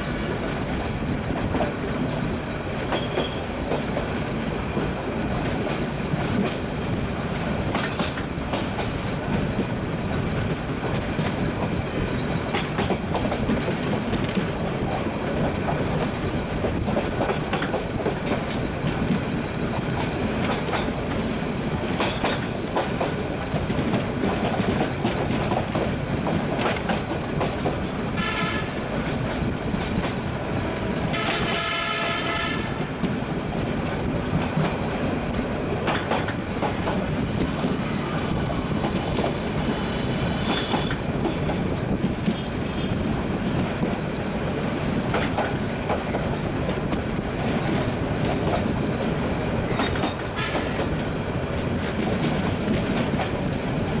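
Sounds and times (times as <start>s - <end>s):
train rumbling on track: 0.0s - 54.0s
train horn blasts: 28.2s - 28.8s, 31.1s - 32.9s, 39.8s - 41.0s.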